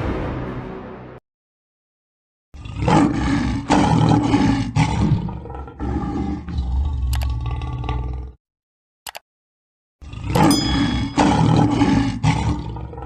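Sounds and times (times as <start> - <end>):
large animal roaring: 2.6 - 8.4, 10.0 - 13.0.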